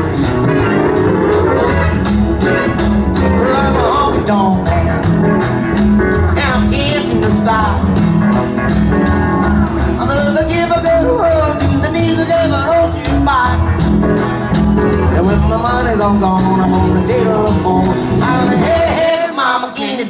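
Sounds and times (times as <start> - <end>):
bass line: 0.0 - 19.2
country band playing: 0.0 - 20.0
lead instrument sliding notes: 0.3 - 4.5.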